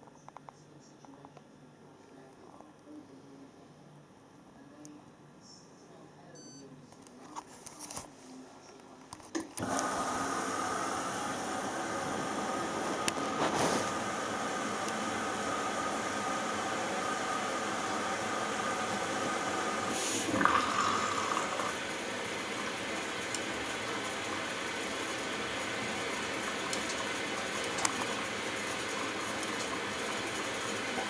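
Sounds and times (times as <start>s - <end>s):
brief tone: 6.4s - 6.7s
water rushing into washing machine: 9.6s - 31.0s.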